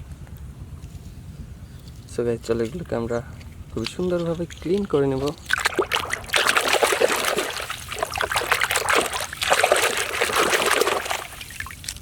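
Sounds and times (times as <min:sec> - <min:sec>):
water trickling and splashing: 0:03.8 - 0:12.0.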